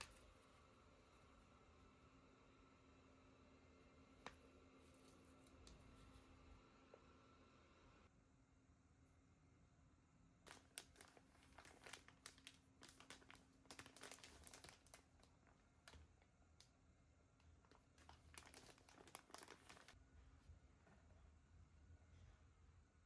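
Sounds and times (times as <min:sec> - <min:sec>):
packaging crinkling: 0:00.0 - 0:00.4, 0:10.5 - 0:16.7, 0:17.6 - 0:20.0.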